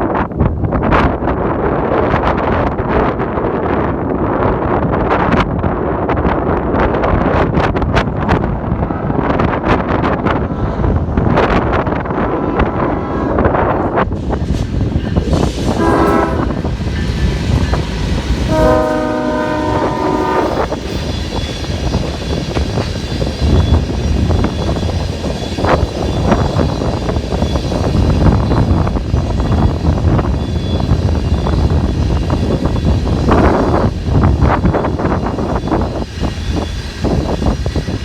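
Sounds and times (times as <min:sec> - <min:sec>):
train rumbling past: 0:00.0 - 0:38.0
train horn chord: 0:12.0 - 0:13.9, 0:15.7 - 0:16.7, 0:18.5 - 0:20.8
wheels clattering over rails: 0:13.6 - 0:35.7.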